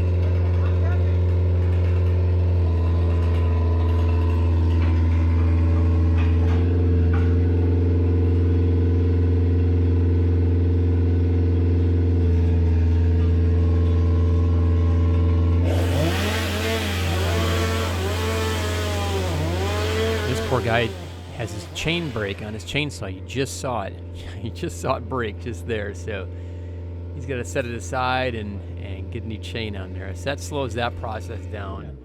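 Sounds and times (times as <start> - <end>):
chainsaw revving: 0.0 - 9.6, 12.1 - 23.0
large engine running: 0.0 - 32.0.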